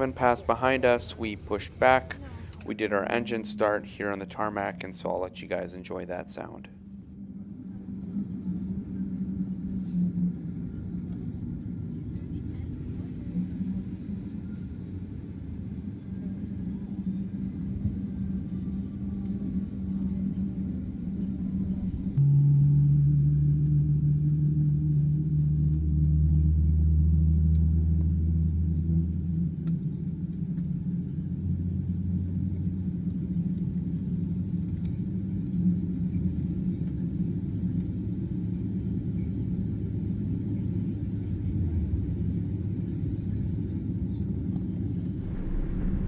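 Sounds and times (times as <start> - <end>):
jet engine starting: 44.9 - 46.0.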